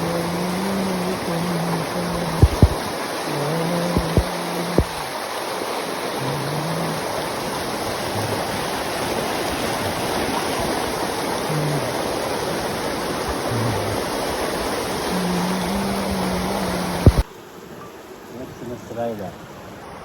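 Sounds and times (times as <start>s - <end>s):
steady rushing noise: 0.0s - 2.9s, 15.0s - 17.3s
faint low hums: 0.0s - 5.1s, 13.5s - 14.3s.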